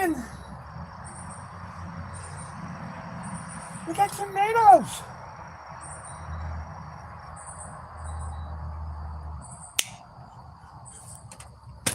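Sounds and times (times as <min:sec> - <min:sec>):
insects chirping trills: 0:00.0 - 0:11.9
sharp click: 0:09.8 - 0:10.0.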